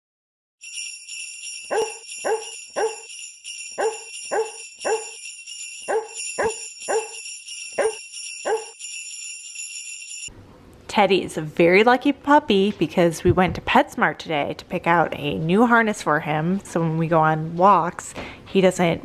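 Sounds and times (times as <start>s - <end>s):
jingling sleigh bells: 0.6s - 10.3s
dog barks tune: 1.7s - 3.1s, 3.8s - 5.2s, 5.9s - 7.2s, 7.8s - 8.7s.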